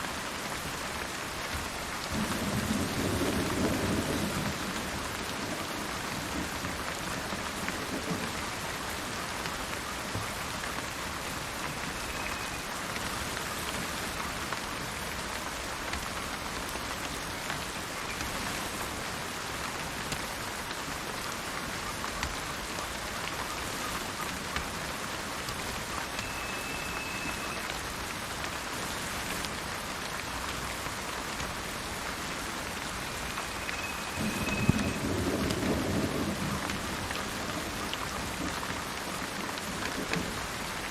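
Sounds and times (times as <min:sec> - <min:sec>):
steady rain falling: 0:00.0 - 0:40.9
low thunder rumble: 0:02.2 - 0:08.4.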